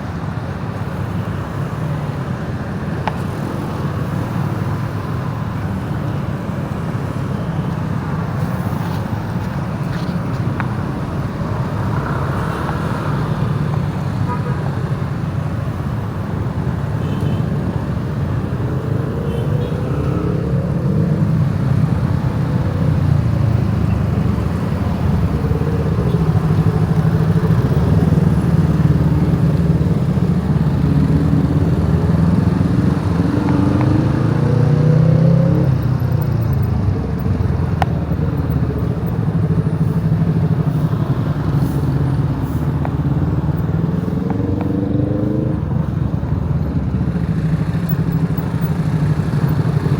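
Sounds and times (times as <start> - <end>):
motorcycle engine revving: 18.0 - 49.9.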